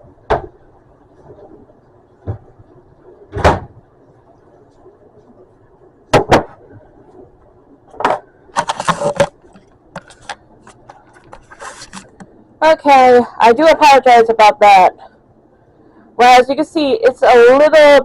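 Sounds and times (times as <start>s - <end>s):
objects knocking and clunking: 1.2s - 2.7s, 7.9s - 12.4s
rattling and rustling: 8.0s - 12.2s.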